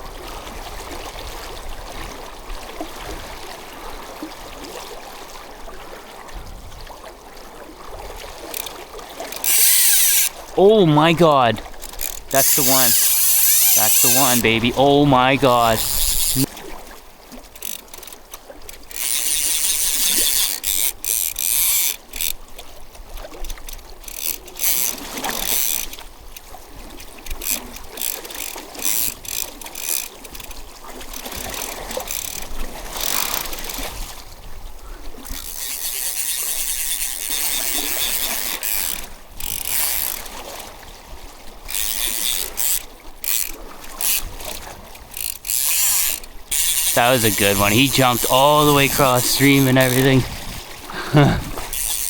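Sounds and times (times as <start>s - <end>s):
fishing reel drag buzzing: 8.4s - 10.5s, 11.7s - 16.5s, 17.5s - 22.7s, 23.3s - 34.2s, 35.1s - 40.7s, 41.6s - 50.1s, 51.5s - 52.0s.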